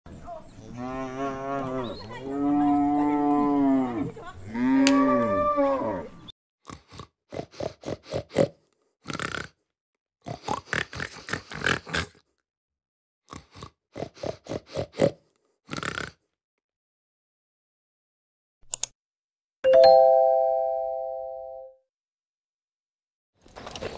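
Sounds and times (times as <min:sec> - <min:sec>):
cow mooing: 0:00.6 - 0:06.2
pig grunting: 0:00.6 - 0:09.6, 0:10.2 - 0:12.2, 0:13.3 - 0:16.2.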